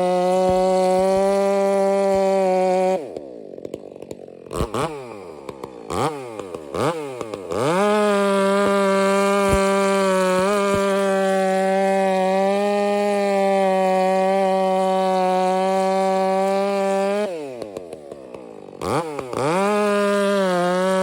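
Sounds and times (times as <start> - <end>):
chainsaw revving: 0.0 - 21.0.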